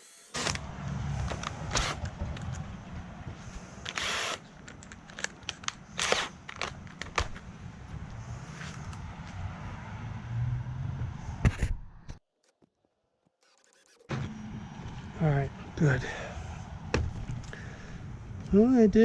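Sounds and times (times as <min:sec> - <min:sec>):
cordless drill motor hum: 0:01.2 - 0:02.6, 0:03.8 - 0:05.0, 0:06.0 - 0:06.6.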